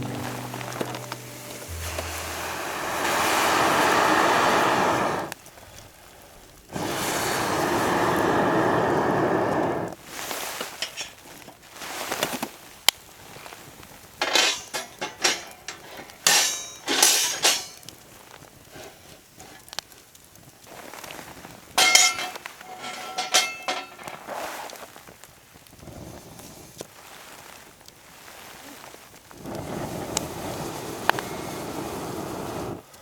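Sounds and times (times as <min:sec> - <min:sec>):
metal cookware clinking: 0:14.2 - 0:17.9, 0:21.8 - 0:24.3.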